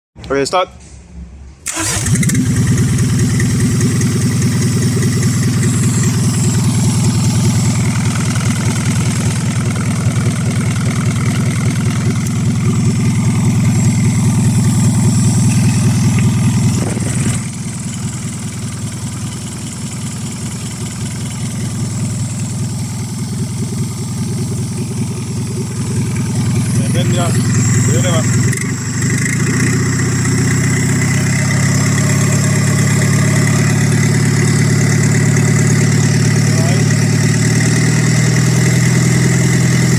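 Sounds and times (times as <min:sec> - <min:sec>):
diesel engine running: 0:01.6 - 0:39.9.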